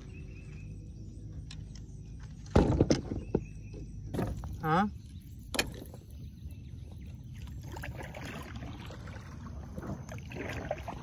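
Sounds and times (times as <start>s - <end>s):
steady low rumble: 3.3s - 11.0s
water splashing around kayak: 4.2s - 11.0s.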